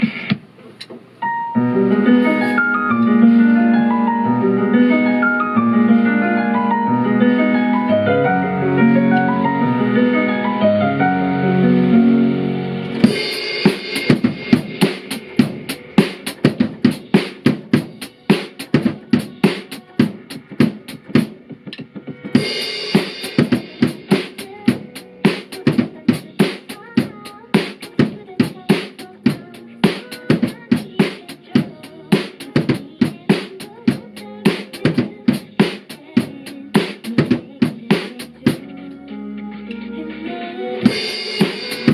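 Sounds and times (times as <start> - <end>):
drum kit groove: 0.0 - 1.0, 2.1 - 4.2, 12.9 - 41.9
melodic keyboard notes: 1.2 - 20.2, 38.3 - 41.9.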